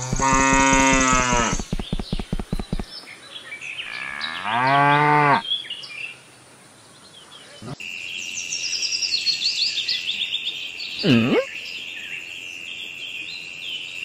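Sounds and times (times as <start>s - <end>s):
cow grunting: 0.0s - 1.7s
cow mooing: 0.0s - 1.7s, 3.9s - 5.4s
faint bird chirps: 7.0s - 14.0s.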